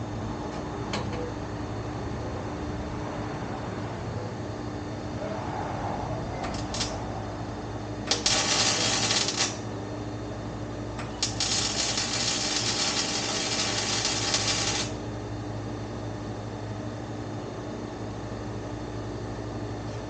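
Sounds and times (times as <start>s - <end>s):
welder crackling hiss: 8.1s - 9.6s, 11.2s - 15.0s.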